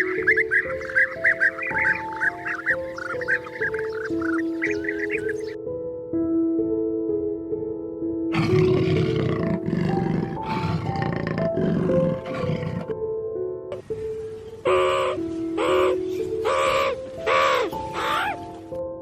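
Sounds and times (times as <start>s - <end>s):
harsh animal calls: 0.0s - 5.6s, 8.3s - 12.9s, 14.6s - 18.4s
background music: 0.0s - 19.0s
animal roaring: 8.3s - 12.9s.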